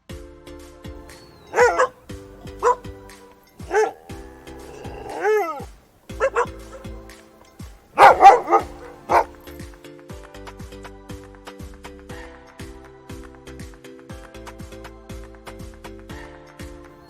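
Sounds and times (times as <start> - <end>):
light background music: 0.0 - 17.0
dog whining yelp: 1.1 - 7.0, 8.0 - 9.4
dog barking: 1.1 - 9.6.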